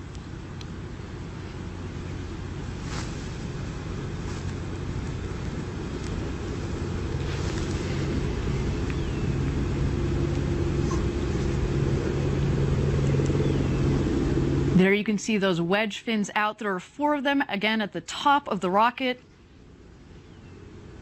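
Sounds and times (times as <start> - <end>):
low steady hum: 0.0 - 21.0
air rushing rumble: 2.4 - 14.8.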